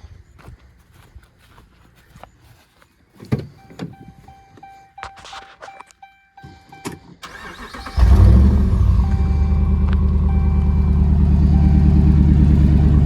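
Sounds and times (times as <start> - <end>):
dashboard chime beeping: 3.5 - 7.2, 8.8 - 13.0
truck engine cranking and idling: 6.4 - 13.0.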